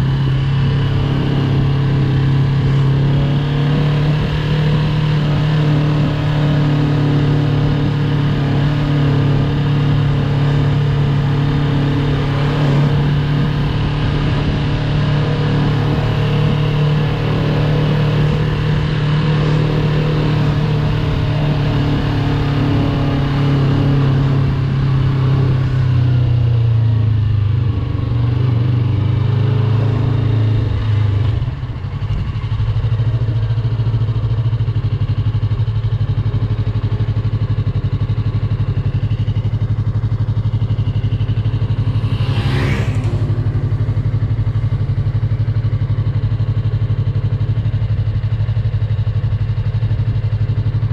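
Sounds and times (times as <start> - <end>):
motorcycle engine at low revs: 0.0 - 50.9
rising whoosh: 41.5 - 44.7.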